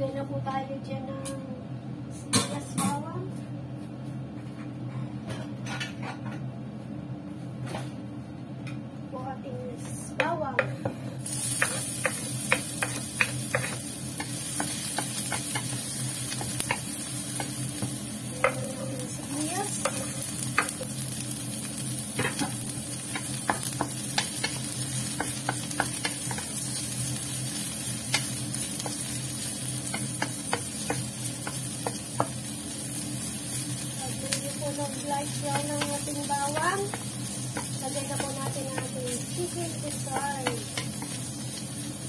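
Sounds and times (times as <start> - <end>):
garlic and onion sizzling in oil: 10.2 - 42.0
stirring taps and scrapes on wok: 10.2 - 42.0.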